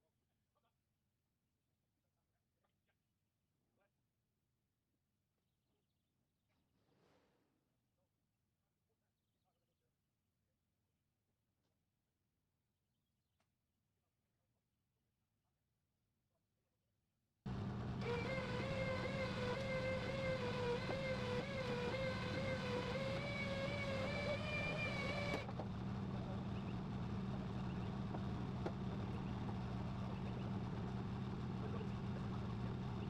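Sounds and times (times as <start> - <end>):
vehicle engine running: 17.5 - 33.0
wavering whine: 17.5 - 33.0.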